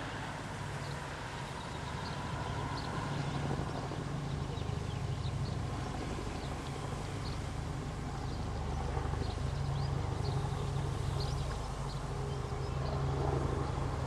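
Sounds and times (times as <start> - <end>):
small birds chirping: 8.2 - 13.1.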